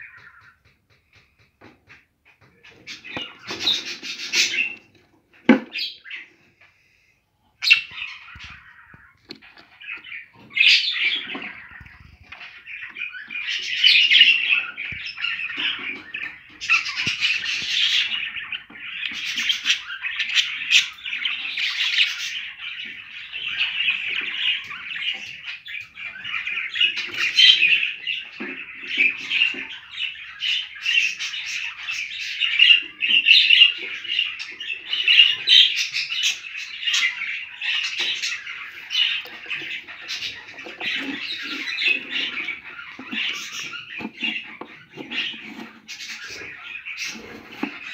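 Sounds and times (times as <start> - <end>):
budgerigars chattering: 2.4 - 6.4, 7.6 - 47.9.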